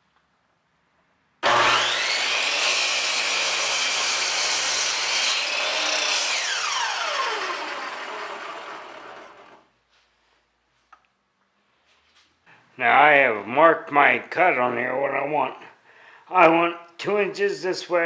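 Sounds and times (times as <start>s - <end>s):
power saw whining: 1.4s - 9.7s.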